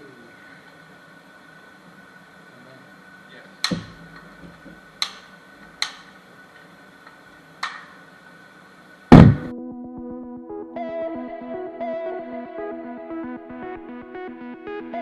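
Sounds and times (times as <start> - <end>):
gunshots: 9.1 - 9.5
loud gunshot: 9.1 - 9.5
music: 9.2 - 15.0.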